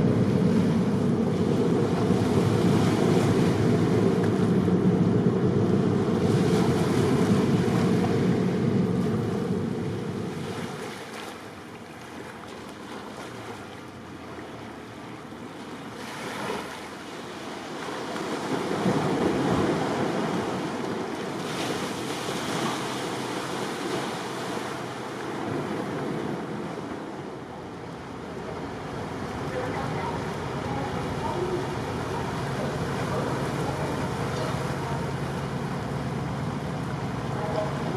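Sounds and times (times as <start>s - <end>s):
wind buffeting the microphone: 0.0s - 11.3s
sea waves washing: 0.0s - 37.9s.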